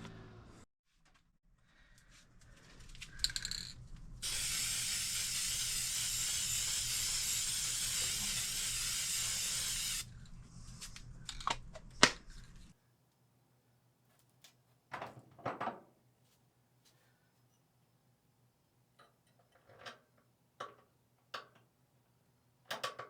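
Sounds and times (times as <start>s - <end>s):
spray can hissing: 4.2s - 10.1s
small clicks and knocks: 19.0s - 21.7s, 22.7s - 23.0s.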